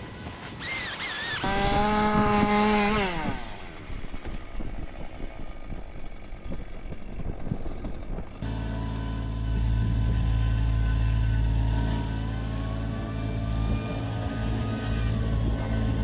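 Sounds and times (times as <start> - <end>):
high wavering whine: 0.0 - 16.0
chainsaw revving: 0.6 - 4.7.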